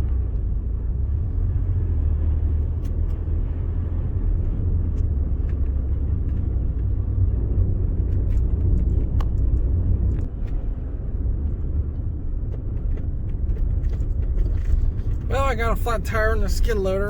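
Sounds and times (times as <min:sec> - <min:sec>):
engine and tyres rumbling: 0:00.0 - 0:17.0.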